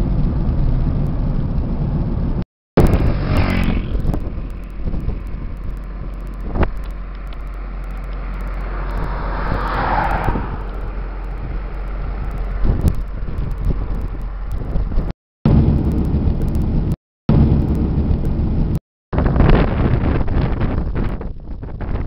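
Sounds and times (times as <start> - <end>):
wind noise on microphone: 0.0 - 22.0
motorcycle engine running: 2.8 - 18.7.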